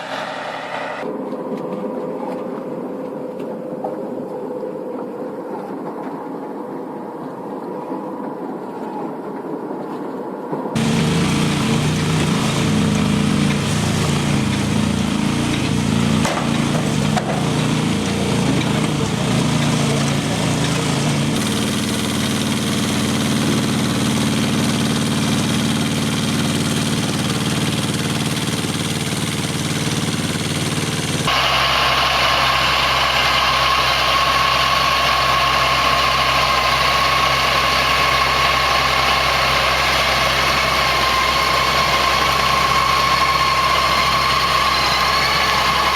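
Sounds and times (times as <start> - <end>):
heavy machinery engines running: 0.0 - 1.0, 10.8 - 45.9.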